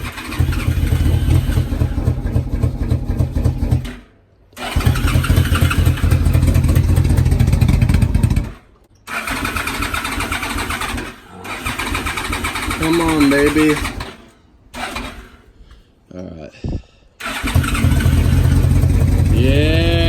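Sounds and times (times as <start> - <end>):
motorcycle engine cranking on starter: 0.0 - 15.6, 17.2 - 19.7.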